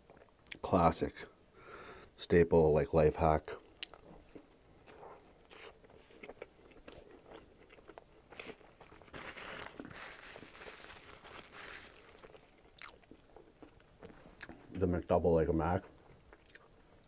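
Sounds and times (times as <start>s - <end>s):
biting and chewing burger: 3.6s - 14.7s.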